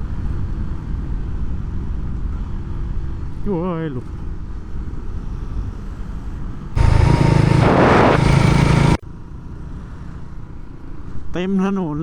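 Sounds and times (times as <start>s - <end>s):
vehicle road noise: 6.8s - 9.0s.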